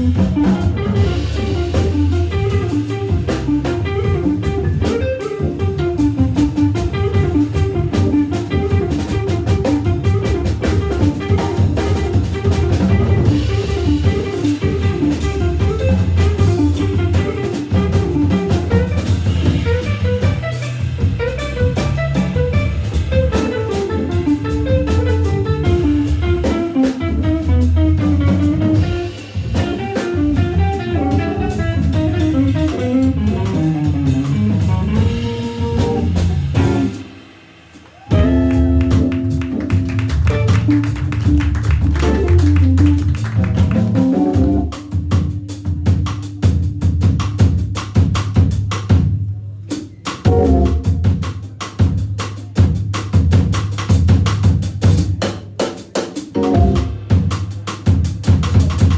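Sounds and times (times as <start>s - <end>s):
fast guitar runs: 0.0s - 34.2s, 38.1s - 44.6s
organ bass line: 0.0s - 37.1s, 38.1s - 47.8s, 50.3s - 51.2s, 56.4s - 57.1s
drum kit: 0.0s - 58.9s.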